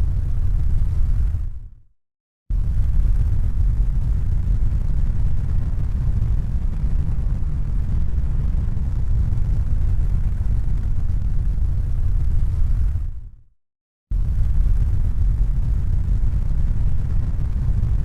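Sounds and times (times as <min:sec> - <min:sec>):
deep low rumble: 0:02.5 - 0:13.3, 0:14.1 - 0:18.0.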